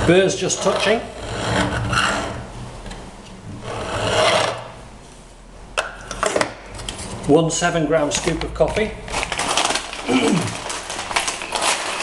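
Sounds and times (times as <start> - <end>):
coffee grinder burrs scraping: 9.1 - 12.0.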